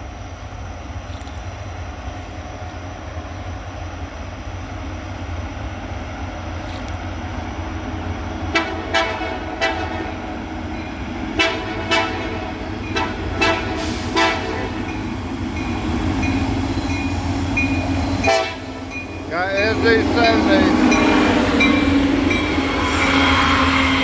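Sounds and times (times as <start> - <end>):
diesel locomotive rumble: 0.0 - 24.0
train horn short toots: 8.5 - 10.2, 11.4 - 14.8, 18.2 - 18.8.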